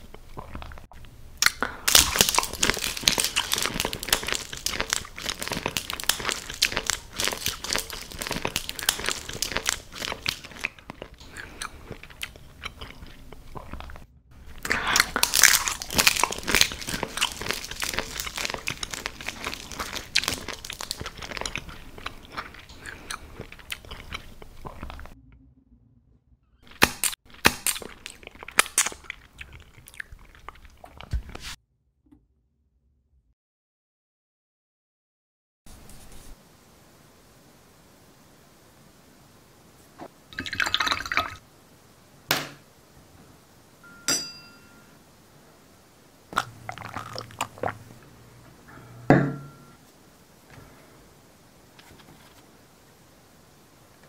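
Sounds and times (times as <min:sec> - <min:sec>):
crisp crunching and chewing: 0:00.0 - 0:25.2, 0:26.6 - 0:31.5, 0:46.3 - 0:48.1.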